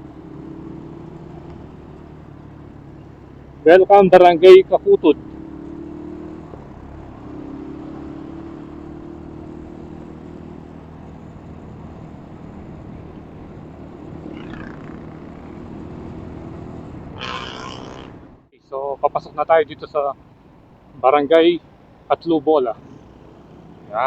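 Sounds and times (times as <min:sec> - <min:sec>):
road noise rumble: 0:00.0 - 0:24.0
vehicle engine hum: 0:00.0 - 0:24.0.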